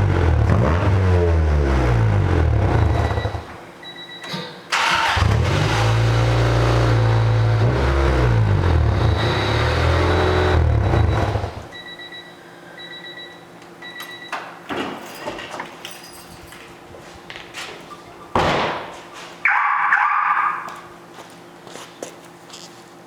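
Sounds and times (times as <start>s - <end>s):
car engine starting and revving: 0.0s - 3.5s, 4.7s - 11.7s
faint intermittent beeping: 2.8s - 4.6s, 10.8s - 14.4s.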